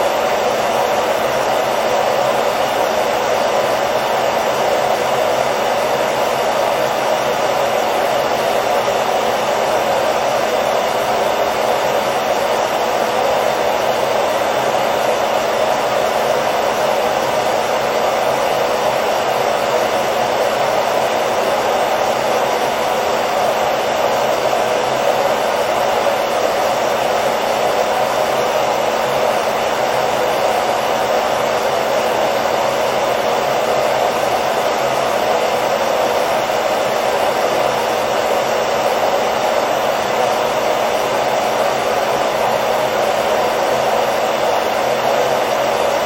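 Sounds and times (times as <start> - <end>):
hair dryer blowing: 0.0 - 46.0.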